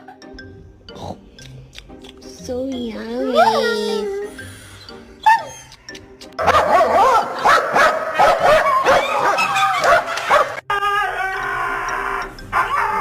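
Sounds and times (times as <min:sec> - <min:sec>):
dog yipping and whining: 0:05.2 - 0:05.8, 0:08.2 - 0:10.4, 0:12.5 - 0:13.0.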